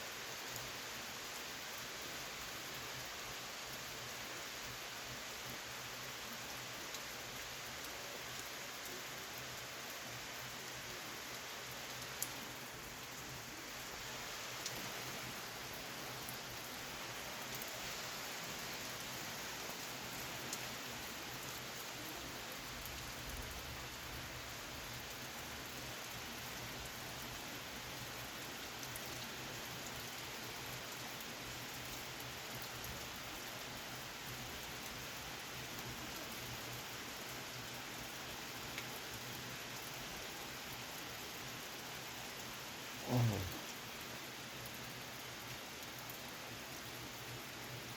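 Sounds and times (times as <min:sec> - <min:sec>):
steady rain falling: 0:00.0 - 0:47.9
rain drop ticks: 0:11.9 - 0:13.3, 0:14.6 - 0:14.8, 0:20.2 - 0:20.8, 0:38.7 - 0:38.9
faint drip tick: 0:12.0 - 0:12.4, 0:20.5 - 0:20.7, 0:38.7 - 0:38.9.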